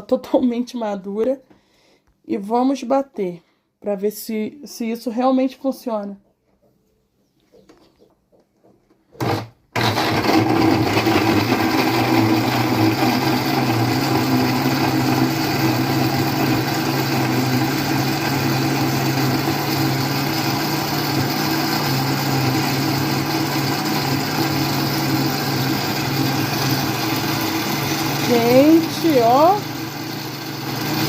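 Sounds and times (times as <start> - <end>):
blender pulsing: 9.2 - 31.0
kitchen blender running: 9.2 - 31.0.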